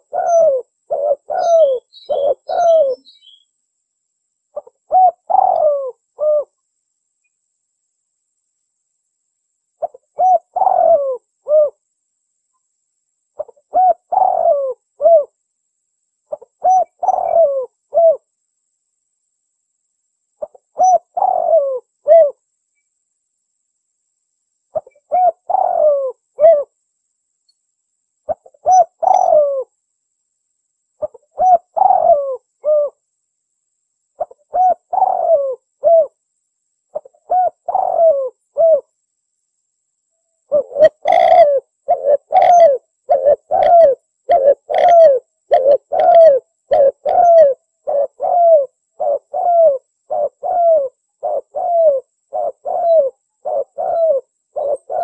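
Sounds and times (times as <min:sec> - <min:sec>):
dove cooing: 0:00.0 - 0:03.4, 0:04.6 - 0:06.5, 0:09.8 - 0:11.8, 0:13.4 - 0:15.4, 0:16.3 - 0:18.3, 0:20.4 - 0:22.4, 0:24.7 - 0:26.7, 0:28.3 - 0:29.7, 0:31.0 - 0:33.0, 0:34.2 - 0:36.2, 0:36.9 - 0:38.9, 0:40.5 - 0:55.0.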